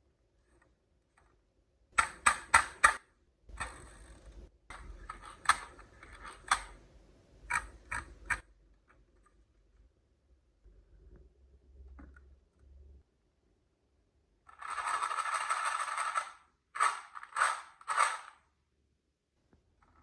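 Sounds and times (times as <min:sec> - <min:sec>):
marbles rolling and clacking: 0:14.5 - 0:18.4.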